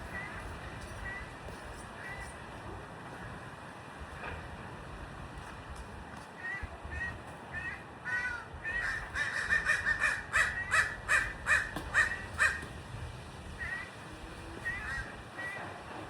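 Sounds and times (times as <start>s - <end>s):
birds harsh repeated calls: 6.4s - 12.8s, 13.5s - 14.0s, 14.6s - 15.8s.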